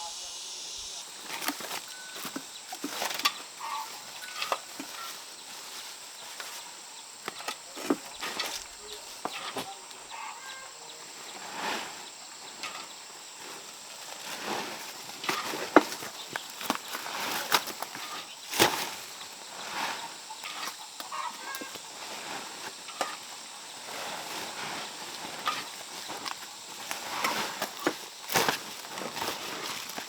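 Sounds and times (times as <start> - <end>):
high chirps: 0.0 - 1.1.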